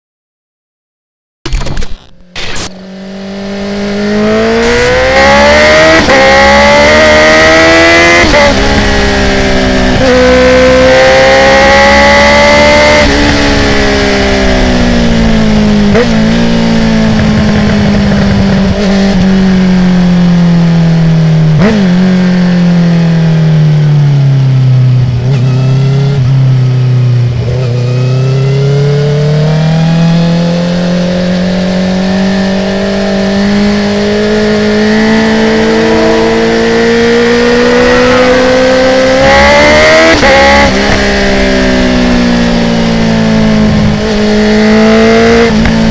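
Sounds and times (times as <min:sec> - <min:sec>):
quickshifter upshifts: 0:01.5 - 0:03.0, 0:04.6 - 0:06.4
motorcycle engine revving: 0:01.5 - 0:45.9.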